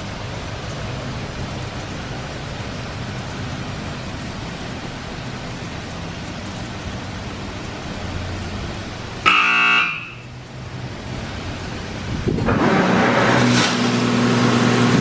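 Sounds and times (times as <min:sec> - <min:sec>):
rushing wash water: 0:00.0 - 0:09.3, 0:10.4 - 0:15.0
car wash spray hissing: 0:00.0 - 0:15.0
electric buzzer: 0:09.2 - 0:10.3.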